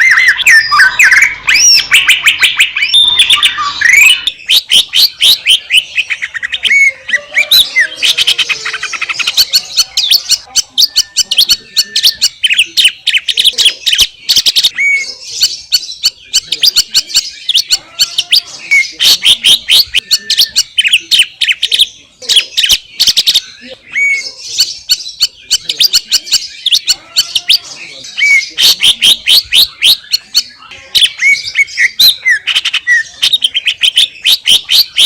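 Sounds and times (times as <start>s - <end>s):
bird singing chirps and trills: 0.0s - 35.0s.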